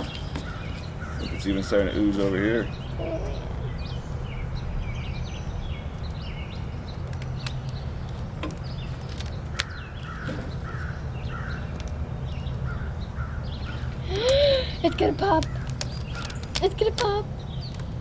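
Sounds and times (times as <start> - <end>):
steady low hum: 0.0 - 9.0
birds chirping and calling: 0.0 - 18.0
short repeated bird calls: 2.4 - 5.2.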